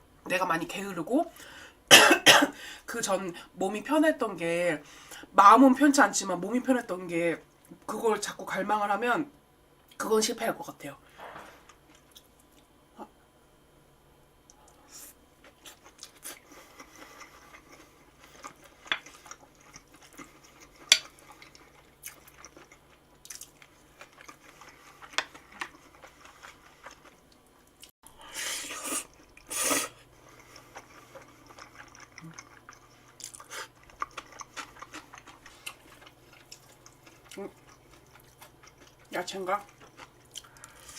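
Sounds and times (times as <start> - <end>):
chewing and crunching food: 11.1 - 12.7, 14.4 - 40.9.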